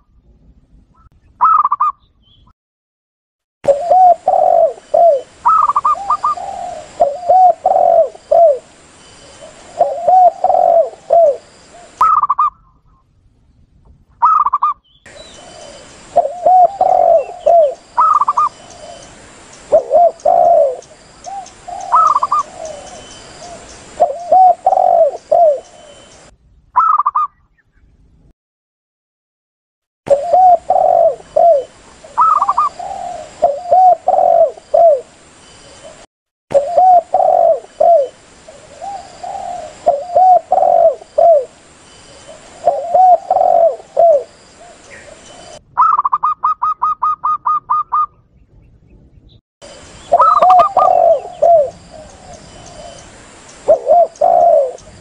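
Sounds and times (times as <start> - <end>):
doves cooing: 3.7 - 12.5, 14.2 - 26.2, 30.1 - 35.2, 35.8 - 48.2, 50.0 - 55.0.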